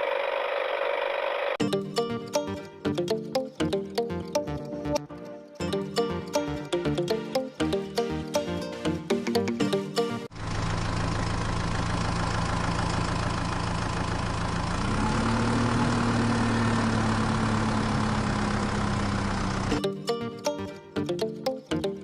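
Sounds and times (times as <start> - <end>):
tractor engine running: 10.3 - 19.8.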